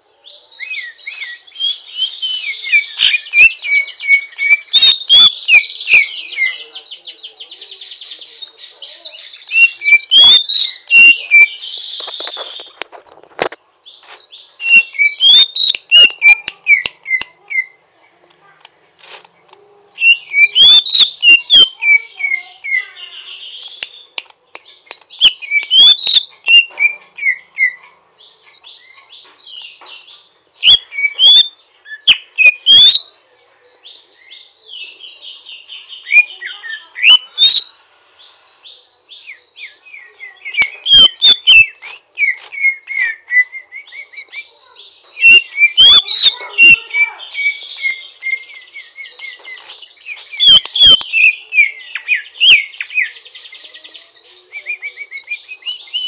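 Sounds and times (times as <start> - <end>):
bird whistled notes: 0.4 - 6.6, 9.4 - 12.8, 20.0 - 24.1, 30.6 - 33.0, 39.0 - 53.7
bird chattering twitter: 0.4 - 12.7, 14.0 - 17.8, 20.0 - 24.0, 24.7 - 56.0.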